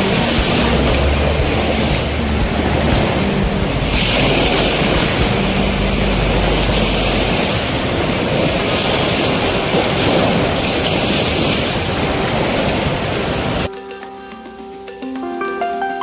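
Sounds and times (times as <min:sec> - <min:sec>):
music: 0:00.0 - 0:10.2, 0:13.7 - 0:16.0
loud rushing noise: 0:00.0 - 0:13.7.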